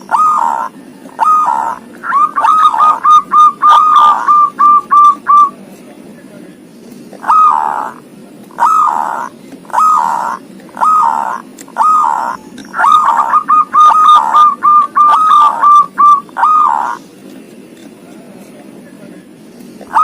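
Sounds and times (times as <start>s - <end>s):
dove cooing: 0.0s - 5.6s, 7.2s - 17.1s, 19.8s - 20.0s.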